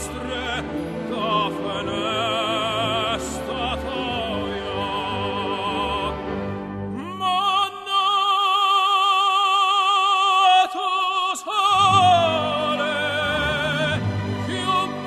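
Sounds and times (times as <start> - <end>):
orchestra playing: 0.0 - 7.7, 11.7 - 15.0
operatic voice singing: 0.0 - 15.0.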